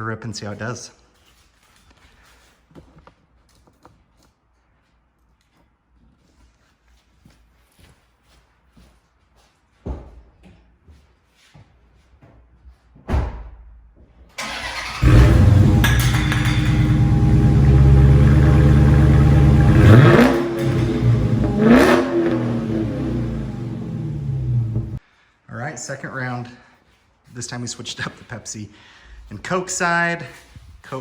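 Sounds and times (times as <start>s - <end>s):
car engine starting and revving: 14.4s - 25.0s.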